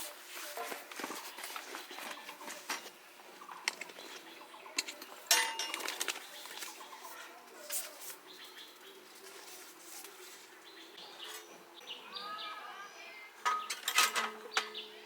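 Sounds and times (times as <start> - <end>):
small metal items clinking: 4.8 - 6.8, 13.4 - 14.4
metal clank ringing: 5.3 - 5.8.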